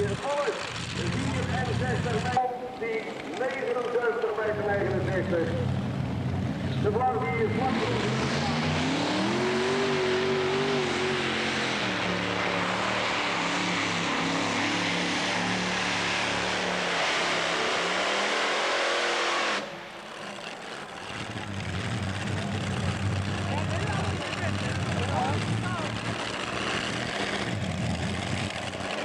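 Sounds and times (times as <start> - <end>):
tractor engine roaring under load: 0.0 - 29.0.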